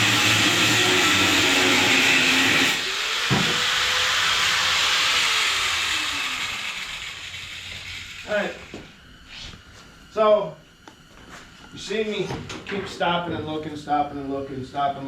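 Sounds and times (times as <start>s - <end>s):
angle grinder cutting steel: 0.0s - 8.8s
grinder spinning down: 0.0s - 8.8s.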